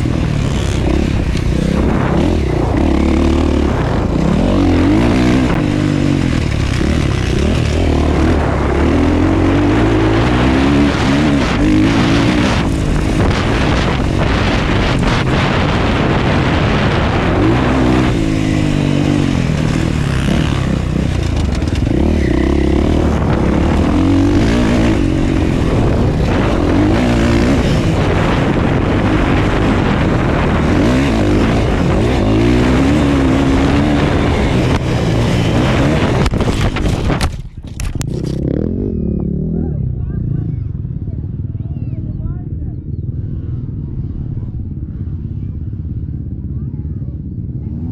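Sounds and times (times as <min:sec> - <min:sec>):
motocross bike engine revving: 0:00.0 - 0:37.4
rush of noise: 0:00.0 - 0:39.6.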